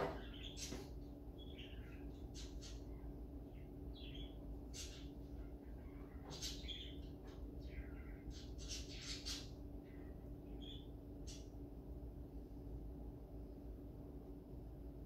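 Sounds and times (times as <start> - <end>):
steady low hum: 0.0 - 15.0
faint bird chirps: 0.2 - 11.6.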